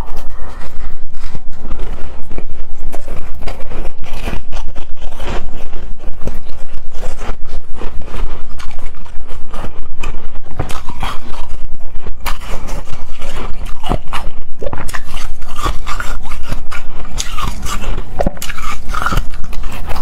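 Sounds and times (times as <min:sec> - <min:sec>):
shaved ice crunching and scraping: 0:14.8 - 0:20.0.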